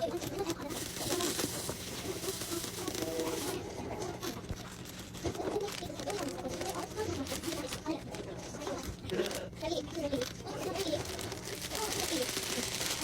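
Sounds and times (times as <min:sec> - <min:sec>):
steady cooking hiss: 0:00.0 - 0:04.4.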